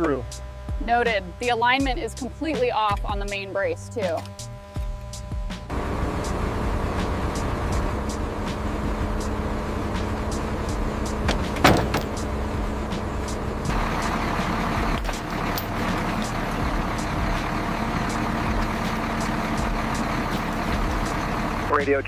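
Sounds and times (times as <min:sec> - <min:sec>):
truck engine and road noise: 0:00.0 - 0:22.0
sharp metal clank: 0:10.0 - 0:17.4.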